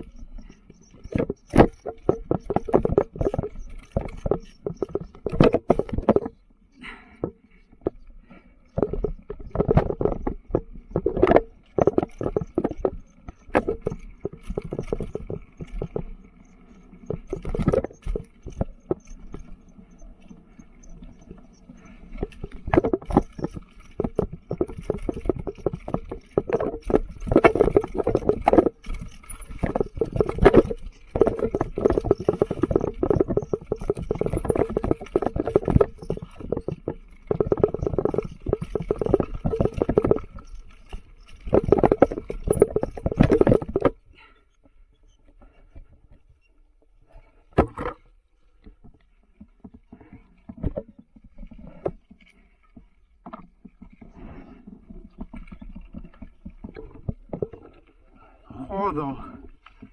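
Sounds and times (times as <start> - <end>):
tyre noise: 0.0 - 46.4
mountain bike rattling on dirt trail: 0.0 - 59.9.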